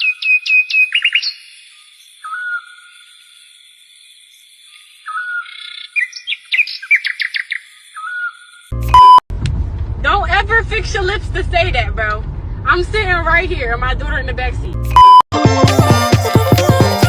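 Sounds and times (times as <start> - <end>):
songbird singing: 0.0 - 8.8.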